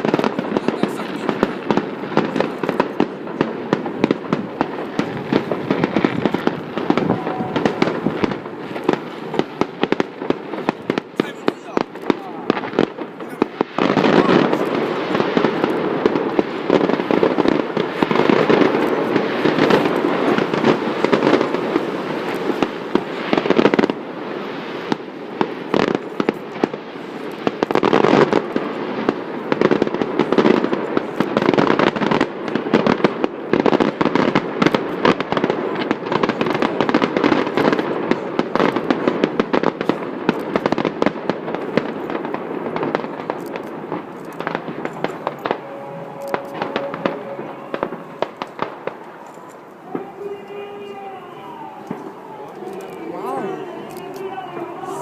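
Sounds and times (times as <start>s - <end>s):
distant fireworks bangs and crackles: 0.0s - 55.0s.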